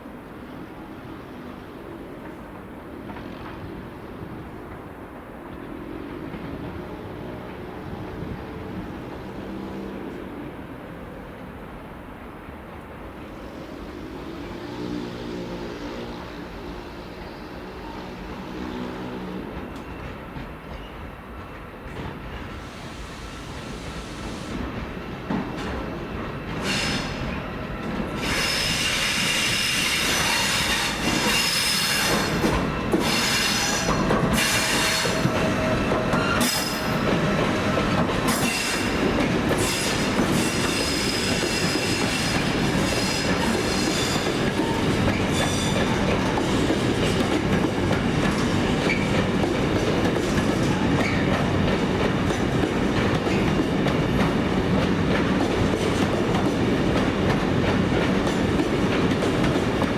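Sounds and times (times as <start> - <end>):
rumble of wheels on rail: 0.0 - 59.9
train wheel flanges squealing: 17.0 - 52.6.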